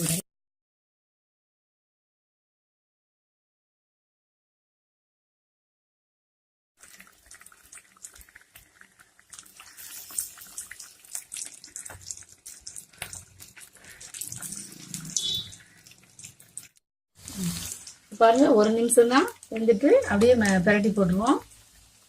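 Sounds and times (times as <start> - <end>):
cutlets sizzling in hot oil: 0.0 - 0.2, 6.8 - 22.0.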